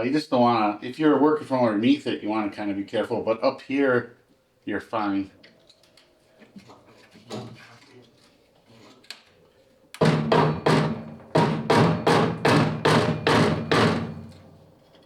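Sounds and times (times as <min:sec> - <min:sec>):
mallet striking screwdriver: 0:10.0 - 0:14.5.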